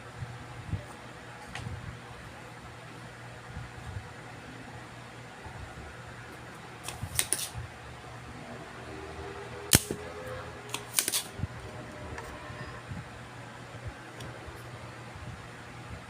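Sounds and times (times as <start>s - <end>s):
steady low hum: 0.0s - 16.0s
loud snap: 9.7s - 10.0s, 10.7s - 11.3s.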